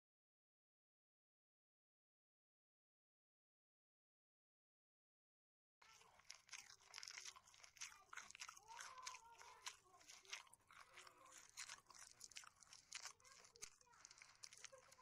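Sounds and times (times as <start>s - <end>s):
person chewing crunchy food: 5.8s - 15.0s.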